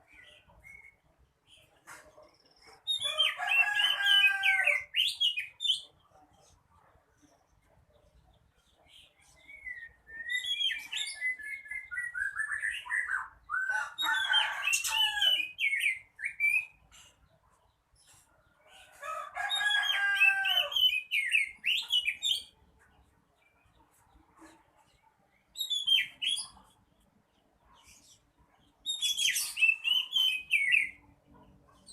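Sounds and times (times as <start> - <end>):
magpie-robin singing: 2.8 - 6.0, 8.9 - 17.2, 19.5 - 22.6, 25.5 - 26.8, 27.7 - 31.9.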